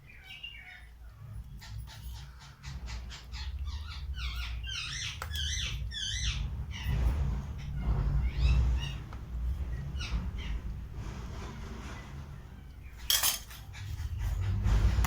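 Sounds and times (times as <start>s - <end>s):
birds chirping: 0.0s - 11.0s
low rumble: 2.8s - 13.1s, 13.8s - 15.0s.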